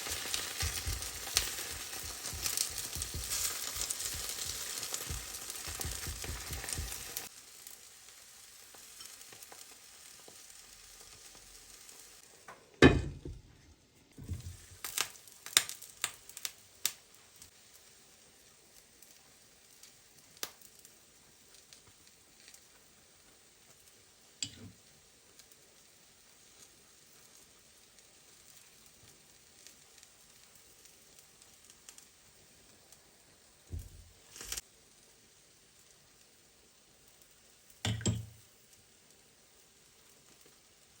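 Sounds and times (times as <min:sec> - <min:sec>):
food sizzling in a pan: 0:00.0 - 0:41.0
clicks and taps: 0:37.9 - 0:38.4.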